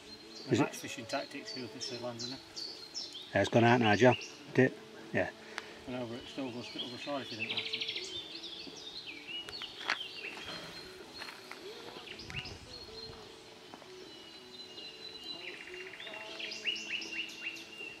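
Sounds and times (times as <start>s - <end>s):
songbirds chirping: 0.0s - 18.0s
bird trill: 6.2s - 18.0s.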